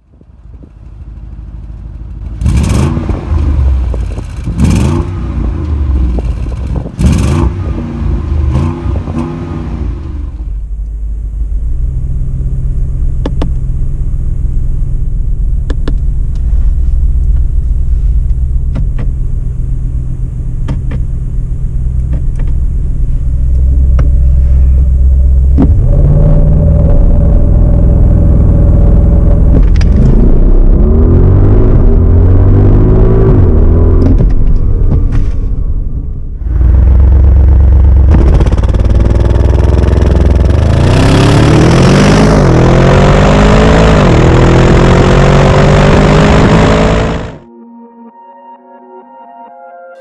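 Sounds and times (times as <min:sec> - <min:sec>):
car engine idling: 0:00.0 - 0:07.0, 0:07.6 - 0:25.9
car engine revving: 0:02.2 - 0:47.5.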